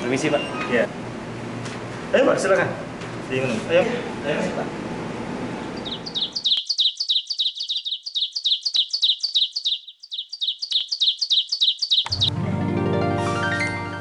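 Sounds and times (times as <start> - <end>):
small bird chirping: 5.8 - 12.3.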